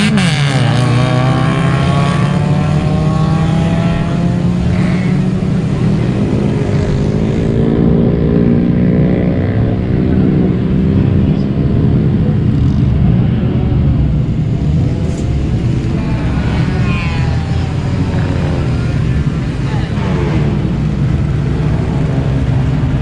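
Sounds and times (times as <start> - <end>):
car engines running and revving: 0.0 - 23.0.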